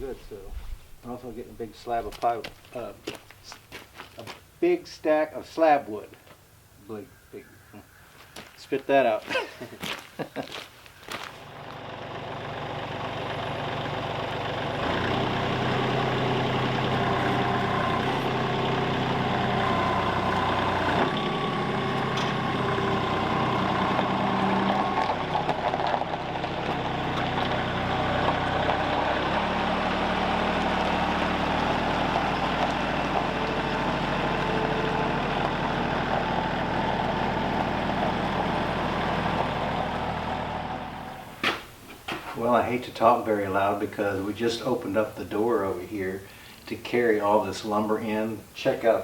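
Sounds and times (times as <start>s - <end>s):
engine running under load: 11.3s - 43.2s.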